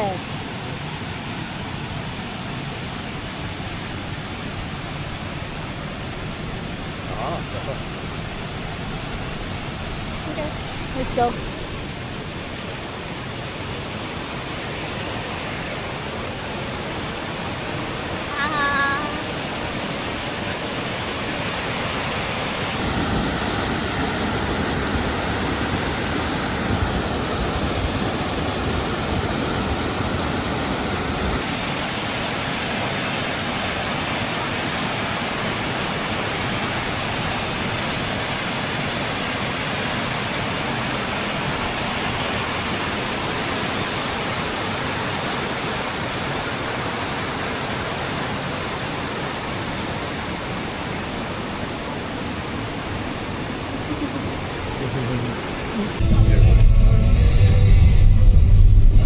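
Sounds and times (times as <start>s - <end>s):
waterfall rushing: 0.0s - 58.1s.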